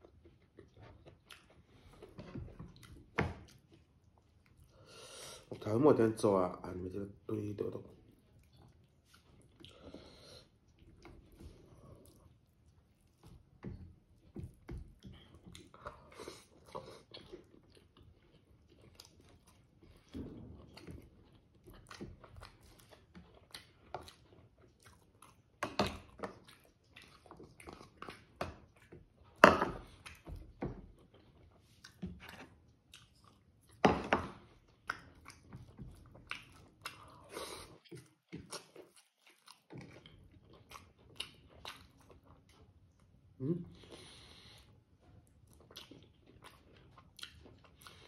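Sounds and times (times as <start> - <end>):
wet chewing and biting: 0.0 - 4.7, 8.1 - 33.8, 34.4 - 43.2, 45.2 - 48.0.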